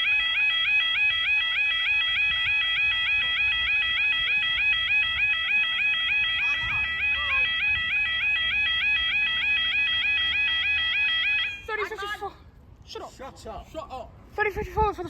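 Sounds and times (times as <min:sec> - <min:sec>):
level crossing alarm warbling: 0:00.0 - 0:12.0.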